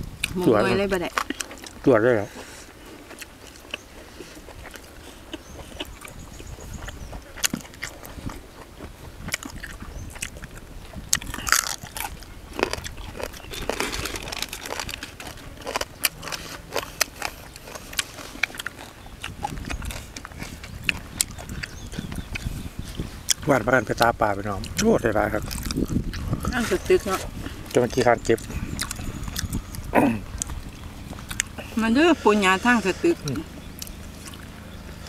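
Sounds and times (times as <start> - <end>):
person chewing and crunching food: 0.0 - 31.8, 32.9 - 35.0
mouth clicks: 15.8 - 34.8.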